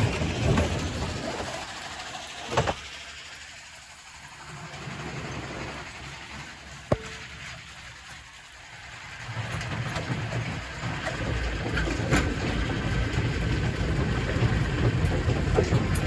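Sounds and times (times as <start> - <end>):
rock crusher grinding rumble: 0.0 - 3.0, 8.9 - 16.0
rock knocking against rock: 6.9 - 7.3.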